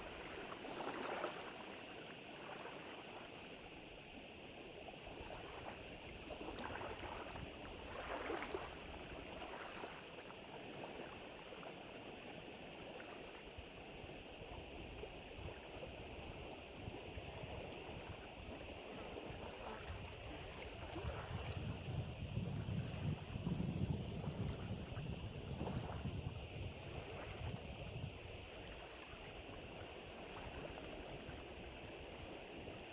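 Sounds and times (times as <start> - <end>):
small waves lapping: 0.0 - 32.9
wind buffeting microphone: 15.3 - 32.9.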